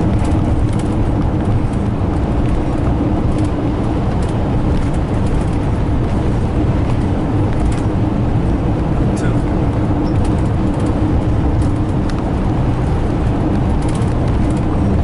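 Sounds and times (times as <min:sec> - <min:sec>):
engine hum: 0:00.0 - 0:15.0
vehicle interior rumble: 0:00.0 - 0:15.0.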